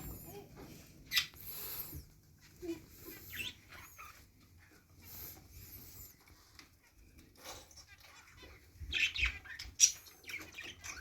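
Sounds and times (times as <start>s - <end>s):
lovebirds chirping and squawking: 0.0s - 11.0s.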